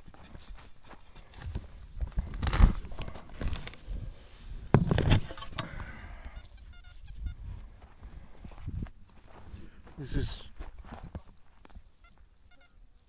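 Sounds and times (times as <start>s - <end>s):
footsteps crunching on dry grass: 0.0s - 4.9s, 5.8s - 13.0s
tool handling: 4.7s - 5.9s.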